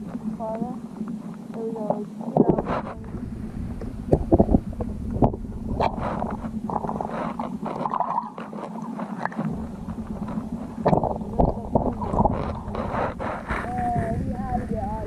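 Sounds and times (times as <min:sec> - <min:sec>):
muffled underwater gurgling: 0:00.0 - 0:15.0
underwater knocks and clicks: 0:00.0 - 0:15.0.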